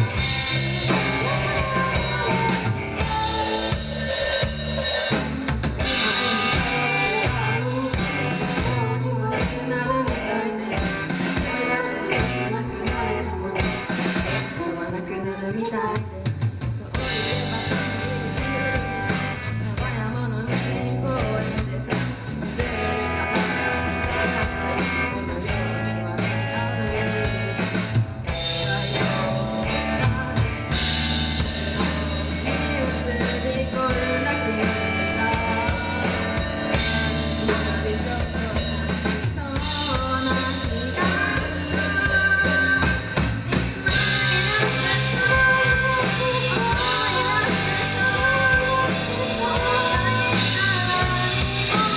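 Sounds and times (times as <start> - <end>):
bass guitar: 0.0 - 51.9
drum kit: 0.0 - 51.9
electric guitar: 0.0 - 51.9.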